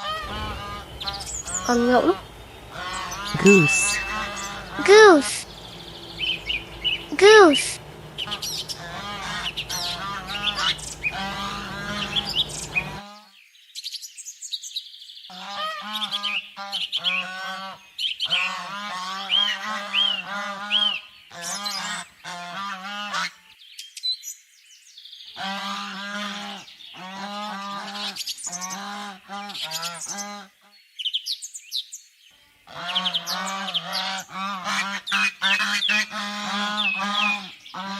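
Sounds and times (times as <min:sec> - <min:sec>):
geese honking: 0:00.0 - 0:13.0, 0:32.7 - 0:37.9.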